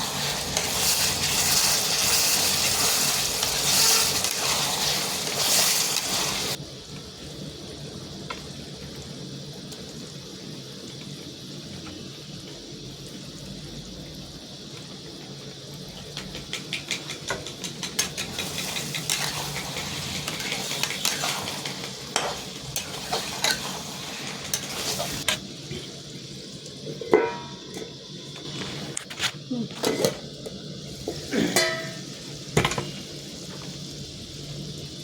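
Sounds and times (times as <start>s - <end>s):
spoon scraping in a pot: 0.0s - 6.6s, 16.8s - 25.9s
food sizzling in a pot: 0.0s - 35.0s.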